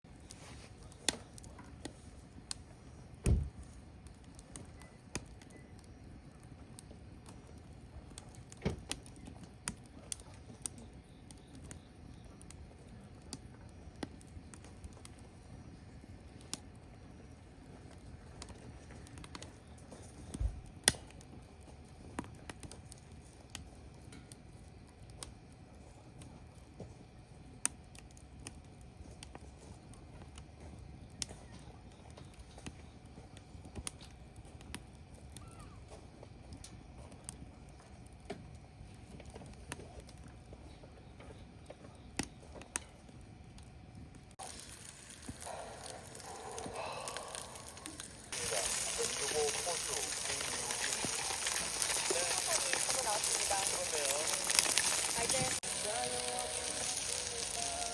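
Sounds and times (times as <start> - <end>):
campfire crackling and popping: 0.1 - 40.7, 41.6 - 57.9
faint steady hiss: 44.3 - 57.9.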